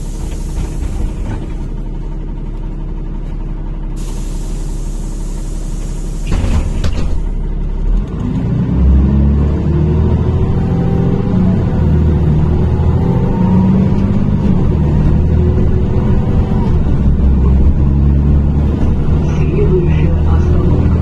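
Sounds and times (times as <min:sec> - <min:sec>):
bus engine idling and revving: 0:00.0 - 0:21.0
pneumatic air hiss: 0:04.0 - 0:07.4.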